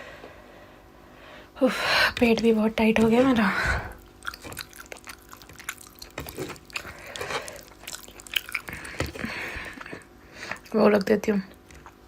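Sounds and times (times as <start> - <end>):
chewing and mouth noises: 3.6 - 12.0.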